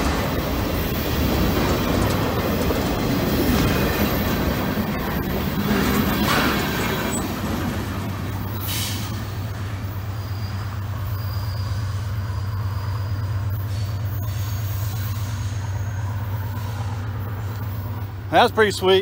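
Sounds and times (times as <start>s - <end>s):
freight cars rolling on rails: 0.0s - 19.0s
faint wheel squeals: 10.0s - 17.7s.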